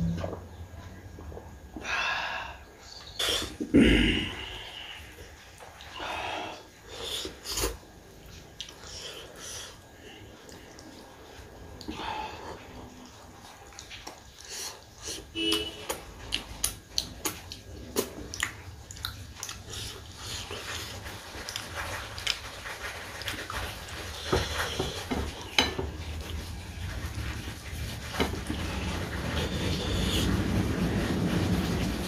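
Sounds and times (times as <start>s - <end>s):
person chewing and lip-smacking: 13.7s - 22.5s
steady rushing noise: 26.8s - 32.0s.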